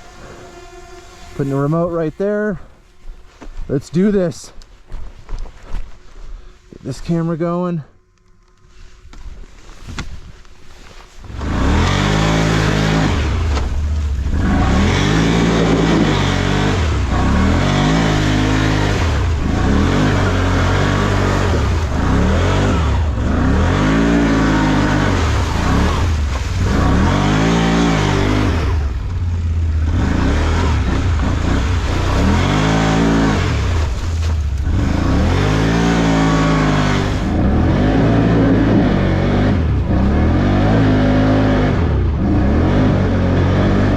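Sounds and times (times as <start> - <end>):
off-road vehicle engine revving: 11.2 - 43.9.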